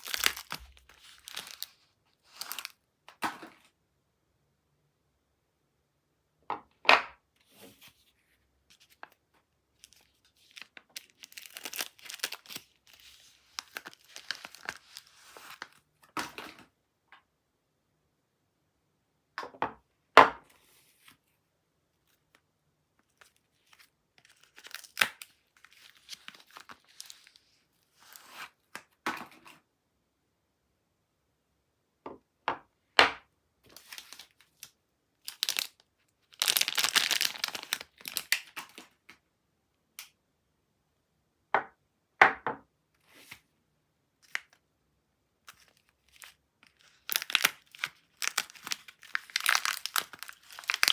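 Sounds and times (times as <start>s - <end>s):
packaging tearing and crinkling: 0.0s - 2.8s, 9.8s - 15.8s, 23.2s - 27.4s, 33.8s - 38.9s, 45.5s - 50.9s.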